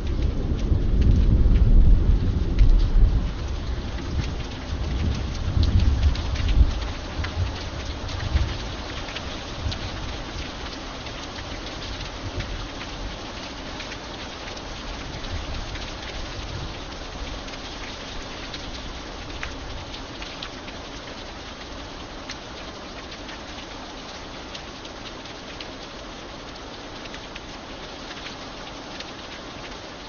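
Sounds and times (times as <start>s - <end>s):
faint low rumble: 0.0s - 7.6s
raindrops ticking: 0.0s - 30.0s
steady rain hiss: 0.0s - 30.0s.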